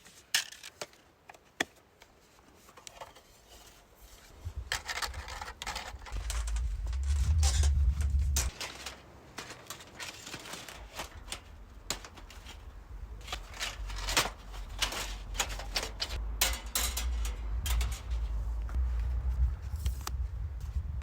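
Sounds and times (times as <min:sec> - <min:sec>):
rustling: 0:02.2 - 0:20.1
low rumble: 0:04.4 - 0:08.6, 0:16.2 - 0:21.0.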